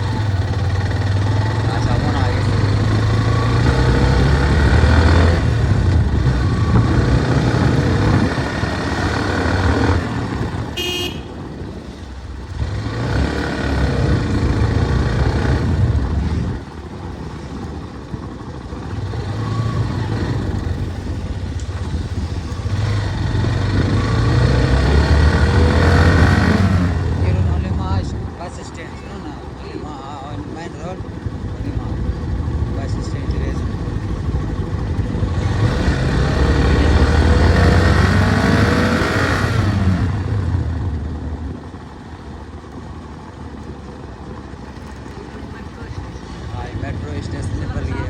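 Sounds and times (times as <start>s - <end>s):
motorcycle engine accelerating: 0.0s - 48.0s
motorcycle horn toot: 10.6s - 11.8s.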